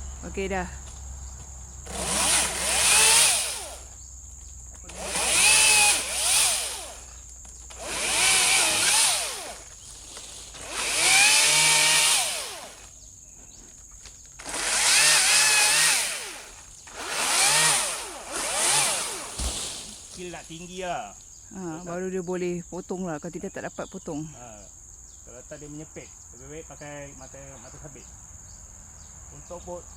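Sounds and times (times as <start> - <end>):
pole saw engine revving: 1.8 - 3.9, 4.8 - 7.1, 7.7 - 9.8, 10.5 - 12.9, 14.4 - 20.6.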